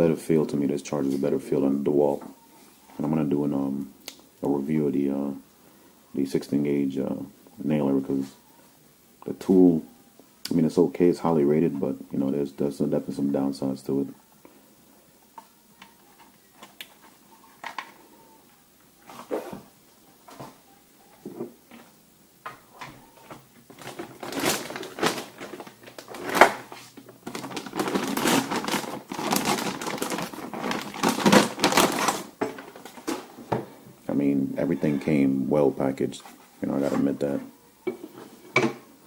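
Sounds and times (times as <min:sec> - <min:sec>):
wrapping rustling and crinkling: 0:22.7 - 0:33.5.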